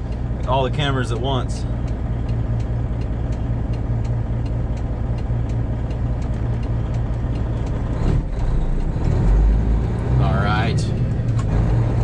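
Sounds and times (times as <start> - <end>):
light ticks: 0.0 - 8.0
truck engine deep drone: 0.0 - 12.0.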